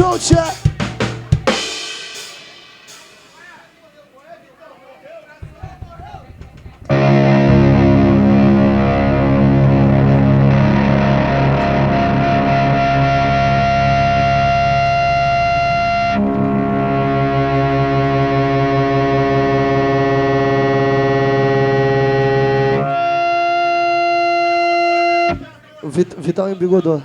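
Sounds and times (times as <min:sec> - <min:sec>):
distorted electric guitar chords: 0:00.0 - 0:03.2, 0:05.4 - 0:25.6.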